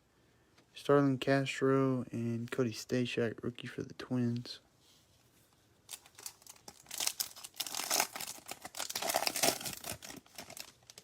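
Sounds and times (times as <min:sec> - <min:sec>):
foil wrapper tearing and crinkling: 0:05.9 - 0:11.0.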